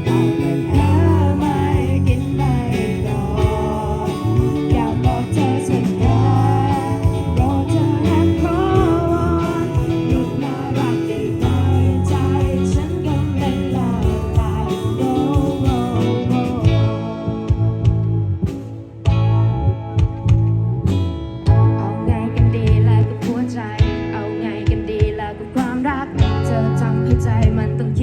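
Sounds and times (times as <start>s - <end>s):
steady drum beat: 0.0s - 21.8s
live pop band playing: 0.0s - 28.0s.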